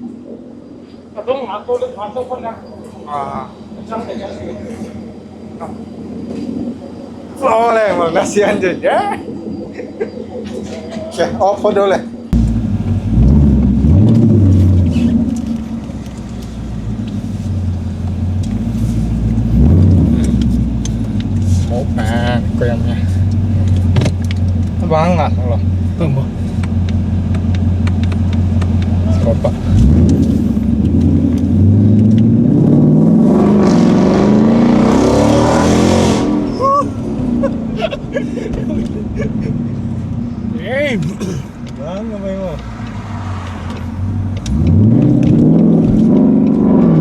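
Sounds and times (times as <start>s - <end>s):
car engine revving: 12.4s - 37.6s, 42.5s - 47.0s.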